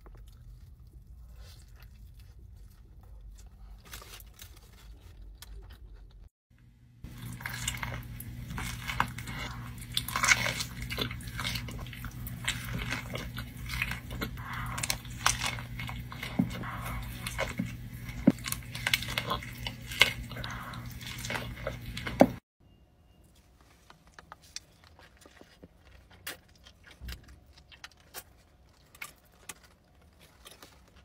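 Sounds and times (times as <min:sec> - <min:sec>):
crunchy chewing and biting: 0:00.0 - 0:06.3, 0:07.0 - 0:22.4, 0:23.9 - 0:31.0
steady low hum: 0:05.4 - 0:22.4.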